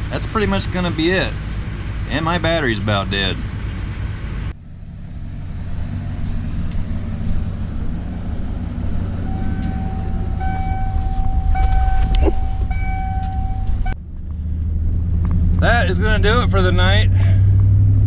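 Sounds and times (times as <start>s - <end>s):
harvester engine rumbling: 0.0s - 18.0s
electronic warning beep: 9.2s - 14.0s.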